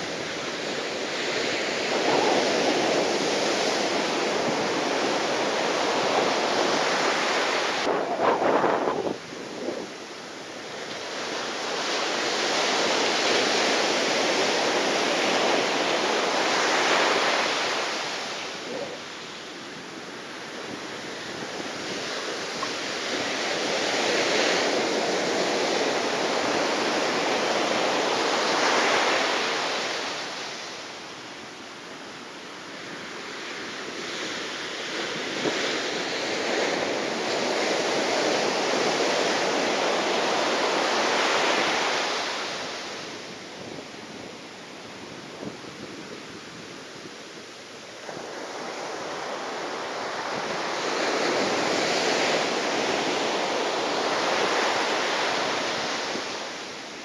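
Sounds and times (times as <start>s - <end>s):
strong wind buffeting microphone: 0.0s - 29.2s
surf washing: 0.0s - 57.0s.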